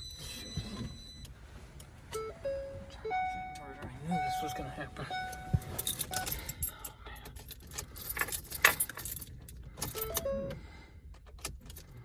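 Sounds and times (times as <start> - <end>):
keys jangling: 5.3 - 10.2.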